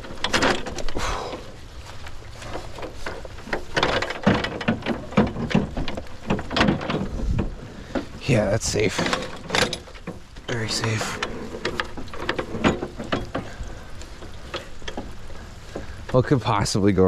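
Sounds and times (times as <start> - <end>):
ladder knocking and clanking: 0.0 - 1.5, 2.3 - 16.2.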